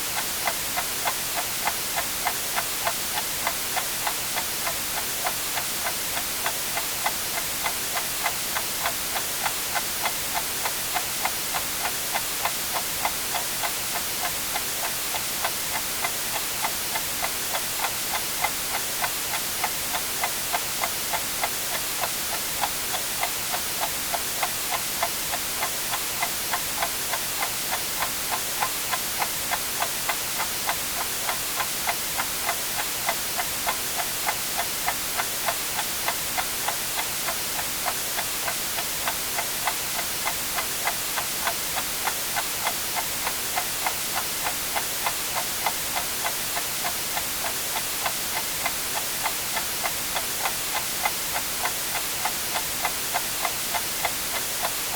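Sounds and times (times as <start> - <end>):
white noise hiss: 0.0 - 54.9
clock ticking: 0.4 - 54.9.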